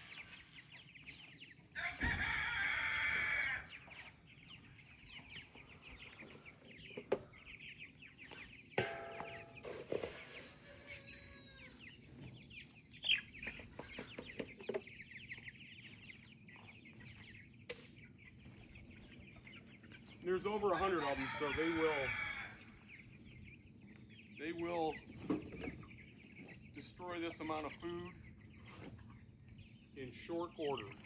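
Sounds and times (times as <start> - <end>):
chickens peeping and clucking: 0.0 - 31.0
loud drawn-out chicken call: 1.8 - 3.9, 8.8 - 12.0, 20.6 - 22.8
sharp knocks: 8.8 - 9.9.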